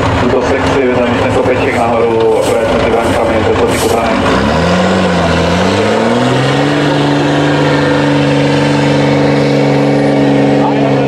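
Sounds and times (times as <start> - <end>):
diesel truck engine revving: 0.0 - 11.0.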